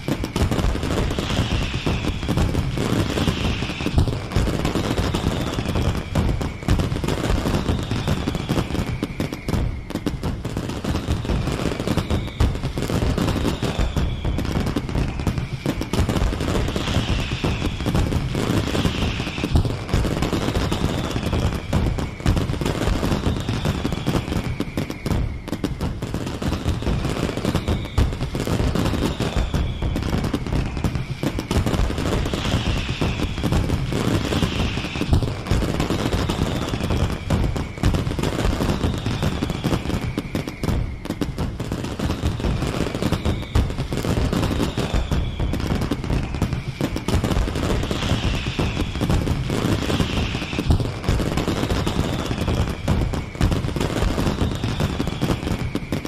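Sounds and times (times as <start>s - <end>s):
fireworks crackling and banging: 0.0s - 56.0s
high falling whistle: 0.0s - 56.0s.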